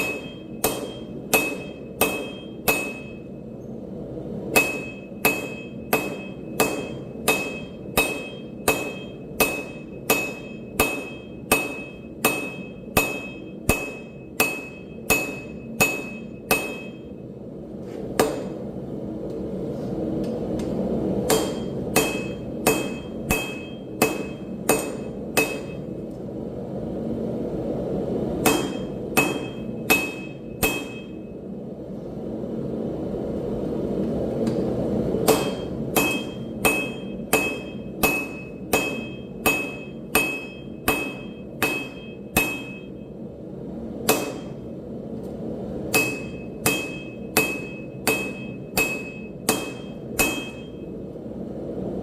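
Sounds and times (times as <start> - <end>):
hammer ringing on anvil: 0.0 - 3.4, 4.5 - 17.1, 21.3 - 25.9, 28.4 - 31.3, 35.2 - 43.1, 44.1 - 44.6, 45.9 - 50.9
steady rushing noise: 0.0 - 38.9.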